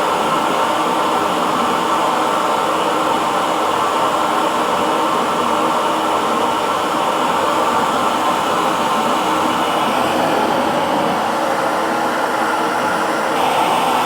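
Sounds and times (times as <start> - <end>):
hair dryer blowing: 8.3 - 14.0.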